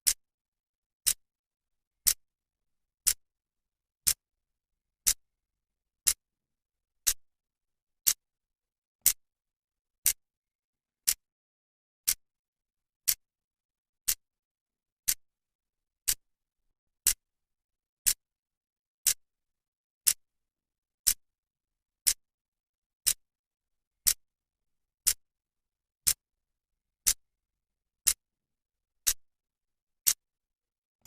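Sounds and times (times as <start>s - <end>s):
clock ticking: 11.0s - 11.2s, 16.0s - 16.2s, 28.0s - 28.2s.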